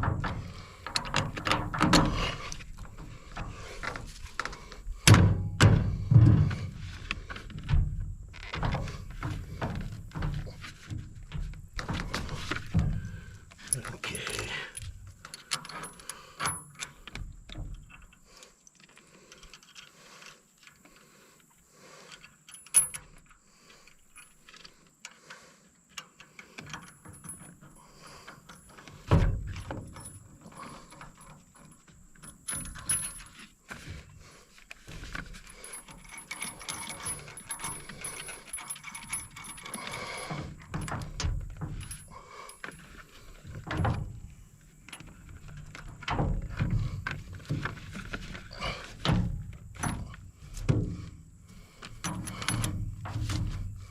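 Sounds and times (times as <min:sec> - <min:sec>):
metal tools and bolts clinking: 0:11.3 - 0:18.2, 0:22.2 - 0:23.4, 0:26.6 - 0:33.5, 0:34.9 - 0:44.3, 0:51.9 - 0:53.9.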